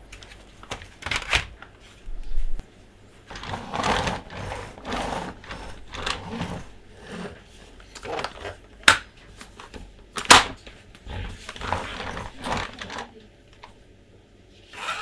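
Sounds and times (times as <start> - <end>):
plastic rattling and scraping: 0.0 - 2.0, 3.2 - 13.8
plastic toys clicking and knocking: 0.1 - 1.6, 3.3 - 6.7, 7.9 - 10.7, 11.4 - 13.8.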